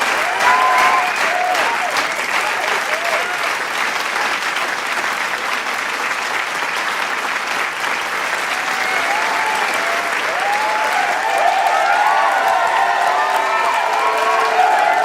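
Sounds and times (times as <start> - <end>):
crowd applauding: 0.0 - 15.0
cheers and whistles: 0.1 - 3.4, 8.5 - 15.0.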